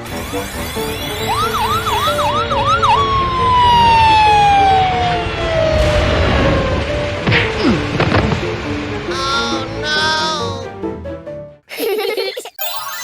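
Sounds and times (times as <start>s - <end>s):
background music: 0.0s - 13.0s
long falling whistle: 0.5s - 7.0s
cartoon siren-like whoop: 1.0s - 6.9s.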